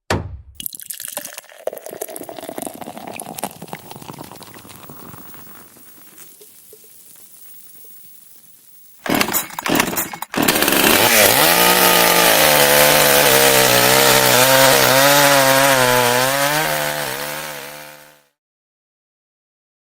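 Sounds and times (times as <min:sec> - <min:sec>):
chainsaw running: 0:09.0 - 0:18.3.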